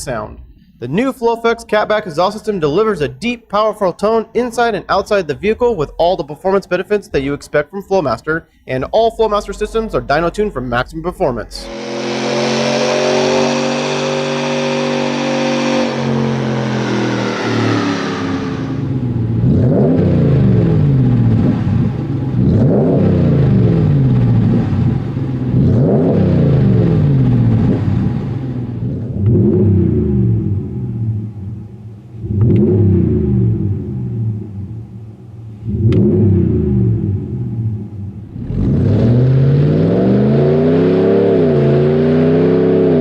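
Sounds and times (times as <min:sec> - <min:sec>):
engine idling: 0:09.3 - 0:28.8
engine revving: 0:11.4 - 0:43.0.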